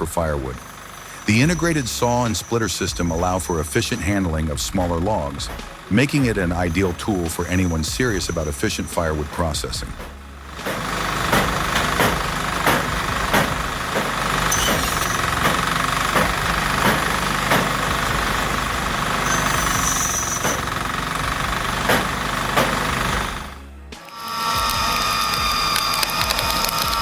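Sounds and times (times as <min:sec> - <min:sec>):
firewood saw machine engine: 0:00.0 - 0:27.0
brief high squeal: 0:19.2 - 0:20.6.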